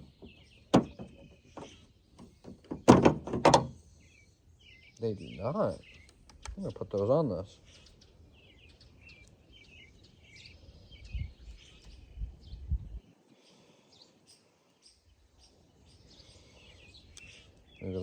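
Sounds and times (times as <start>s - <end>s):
low thuds of parts handled: 0.0s - 3.8s
birds chirping: 0.0s - 18.0s.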